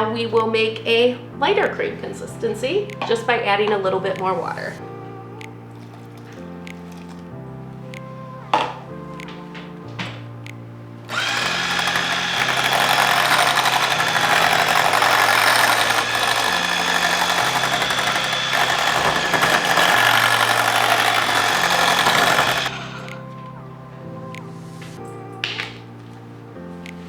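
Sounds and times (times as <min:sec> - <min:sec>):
background music: 0:00.0 - 0:27.0
electric mixer running: 0:11.1 - 0:23.2.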